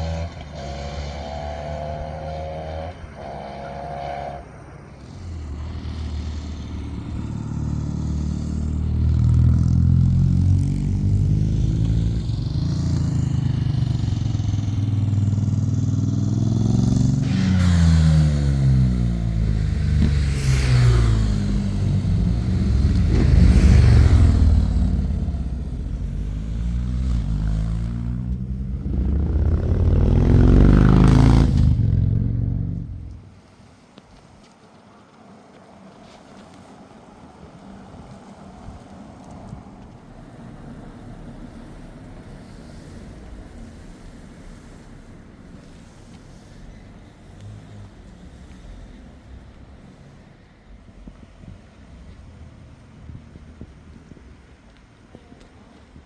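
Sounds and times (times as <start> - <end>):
motorcycles passing at speed: 0.0 - 33.4.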